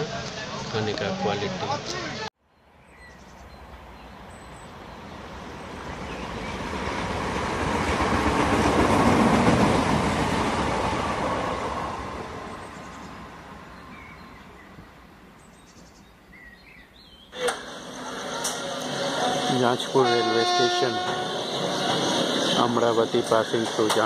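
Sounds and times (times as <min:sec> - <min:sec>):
train wheels rumbling on rails: 0:05.4 - 0:13.7, 0:17.4 - 0:24.0.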